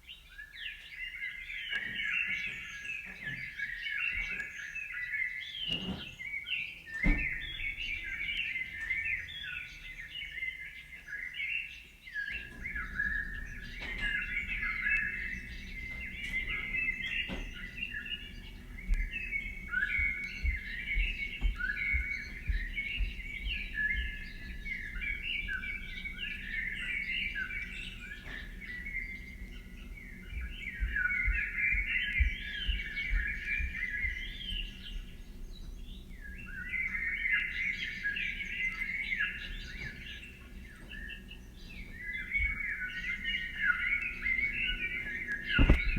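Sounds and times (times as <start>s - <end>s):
small birds chirping: 0.0s - 45.9s
low rumble: 12.3s - 37.2s.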